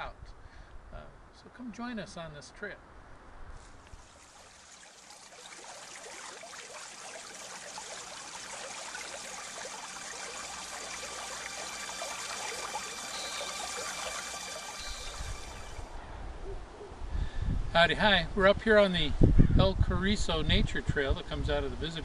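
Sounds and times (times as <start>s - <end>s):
trickling stream: 3.6s - 15.9s.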